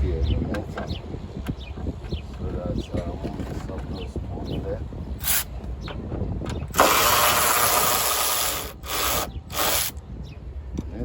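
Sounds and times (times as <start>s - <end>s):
power tool running in bursts: 6.8s - 9.9s.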